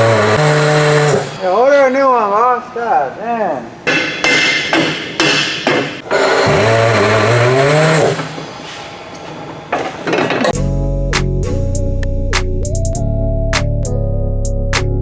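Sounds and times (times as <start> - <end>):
power tool whirring: 0.0 - 1.4, 6.0 - 8.4
sharp knocks: 3.9 - 6.7.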